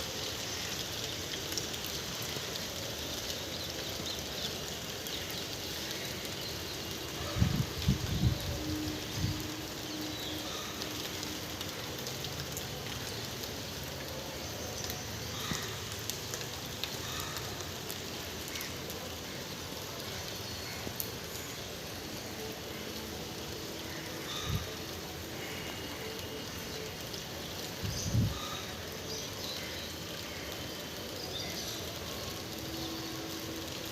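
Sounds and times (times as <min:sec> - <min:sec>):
rain drop ticks: 0:00.0 - 0:33.9
steady rain hiss: 0:00.0 - 0:33.9.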